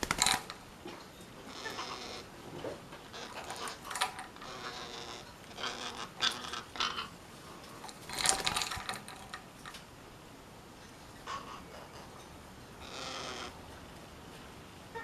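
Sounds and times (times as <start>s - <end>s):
parakeet scratchy calls and clicks: 0.0s - 0.6s, 3.1s - 7.1s.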